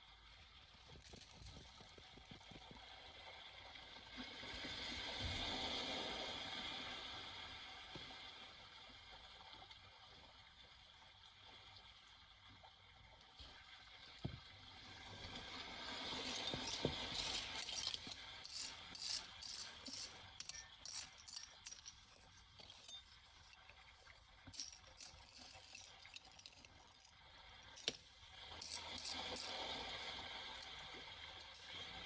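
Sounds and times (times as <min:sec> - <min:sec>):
small hard objects clinking: 0:16.2 - 0:32.0.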